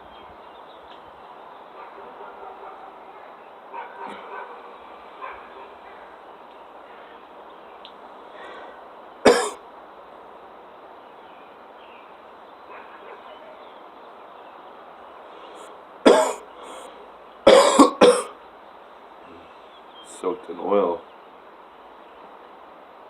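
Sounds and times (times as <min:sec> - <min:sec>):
man coughing: 0:09.3 - 0:09.6, 0:16.1 - 0:16.4, 0:17.5 - 0:18.3.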